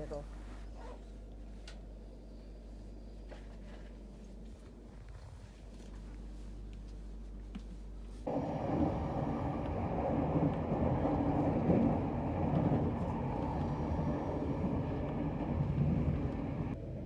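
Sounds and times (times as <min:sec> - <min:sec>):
low hum: 0:08.2 - 0:17.0
train rumbling on track: 0:08.3 - 0:17.0.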